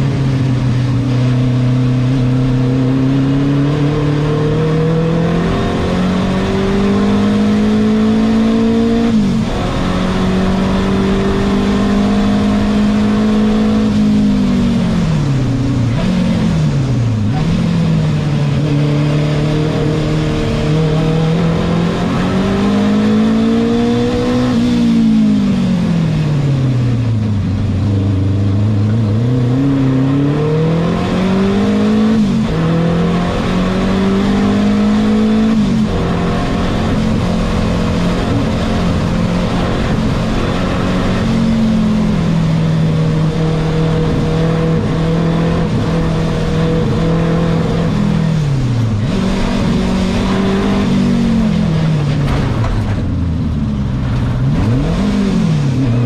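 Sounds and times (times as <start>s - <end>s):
racing car engine: 0.0s - 56.0s.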